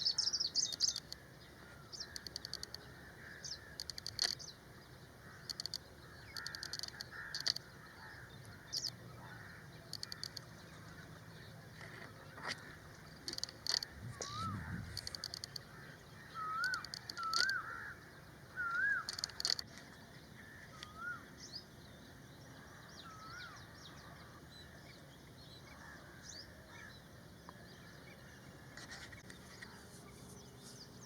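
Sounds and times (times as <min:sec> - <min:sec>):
harsh chattering bird calls: 0:00.0 - 0:04.5, 0:05.1 - 0:10.8, 0:13.1 - 0:21.3.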